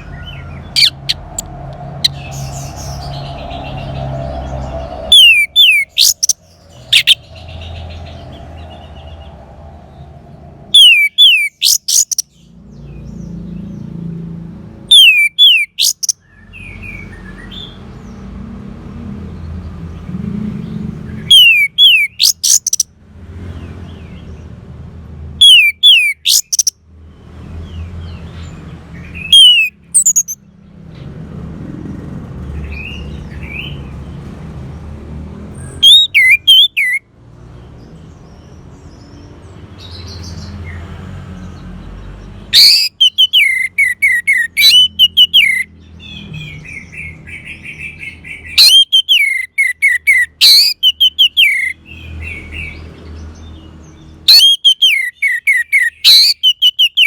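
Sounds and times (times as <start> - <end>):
thrush song whistles: 5.1 - 7.3, 10.8 - 12.2, 14.9 - 16.2, 21.3 - 22.8, 25.4 - 26.7, 29.3 - 30.4, 35.8 - 37.0, 42.6 - 45.7, 48.6 - 51.7, 54.3 - 57.0.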